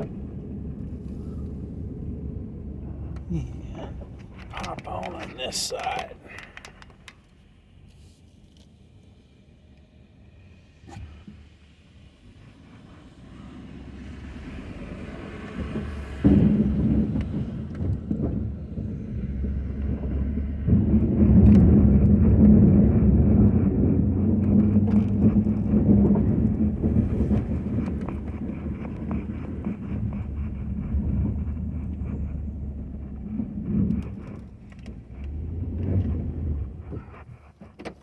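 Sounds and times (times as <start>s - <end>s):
pickup engine running under load: 0.0s - 7.9s, 9.2s - 38.0s.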